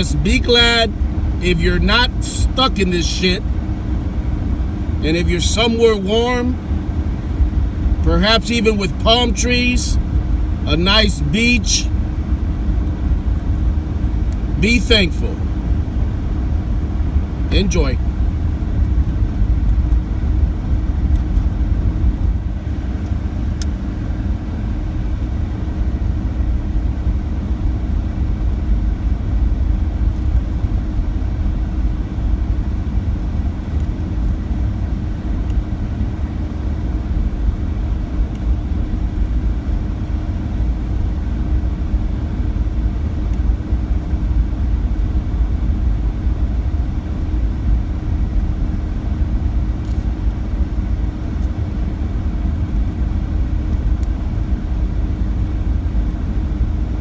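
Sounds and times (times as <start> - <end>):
engine and tyre rumble: 0.0 - 57.0
faint steady hum: 0.0 - 57.0.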